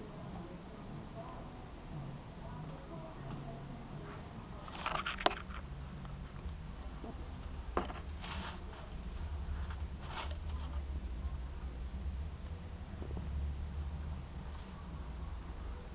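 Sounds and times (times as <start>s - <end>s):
low steady hum: 0.0s - 15.9s
lizards scraping and clicking: 4.6s - 10.8s.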